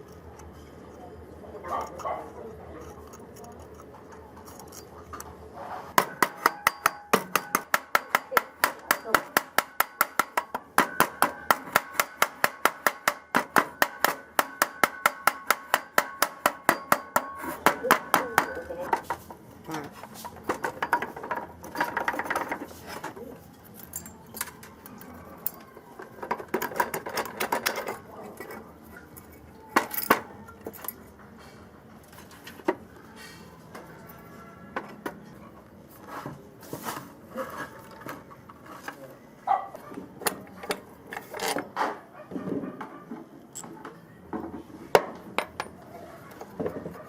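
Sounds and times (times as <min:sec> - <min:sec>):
metal parts scraping: 0:01.6 - 0:06.6, 0:18.6 - 0:32.6, 0:40.3 - 0:41.8
hammer tapping metal: 0:06.0 - 0:19.2.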